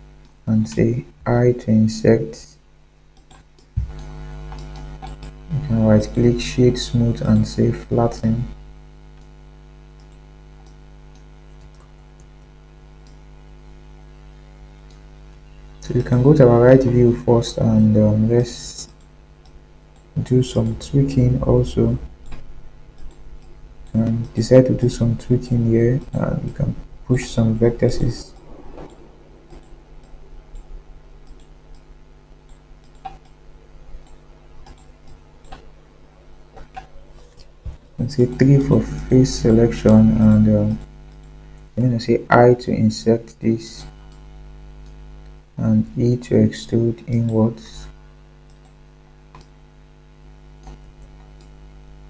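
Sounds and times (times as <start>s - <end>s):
electrical mains hum: 0.0s - 52.0s
faint clicks: 3.1s - 5.4s, 9.1s - 9.4s, 10.0s - 13.2s, 28.3s - 33.4s, 34.0s - 35.7s, 41.0s - 41.7s, 48.4s - 49.6s, 50.6s - 51.6s.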